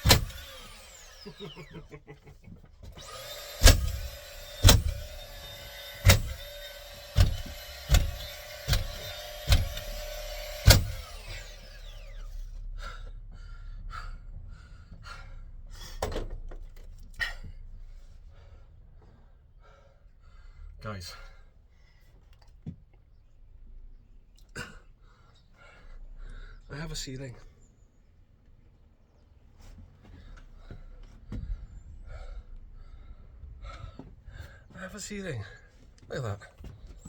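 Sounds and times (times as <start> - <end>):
nail gun shots: 0.0 - 1.7, 3.0 - 11.9
nail gun motor whirring: 0.0 - 2.0, 2.8 - 12.7.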